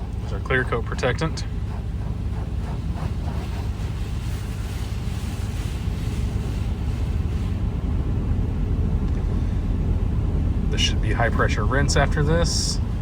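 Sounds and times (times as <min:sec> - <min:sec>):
low rumble: 0:00.0 - 0:13.0
liquid spraying on car body: 0:00.1 - 0:07.7.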